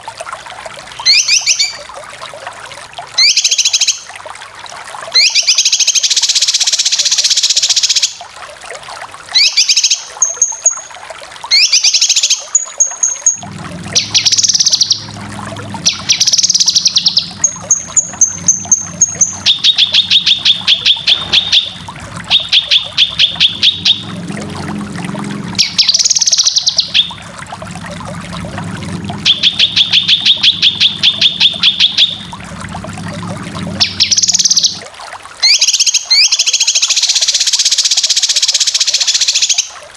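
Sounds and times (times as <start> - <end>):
low steady hum: 12.8 - 35.4
bird singing fast chattering phrases: 14.0 - 15.0, 15.8 - 24.0, 25.6 - 27.1.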